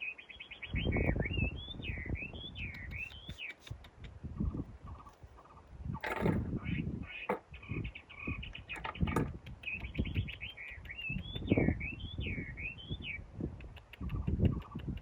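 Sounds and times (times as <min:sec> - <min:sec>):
bird chirping and warbling: 0:00.0 - 0:15.0
low knocks and thumps: 0:05.9 - 0:07.8, 0:08.7 - 0:09.4.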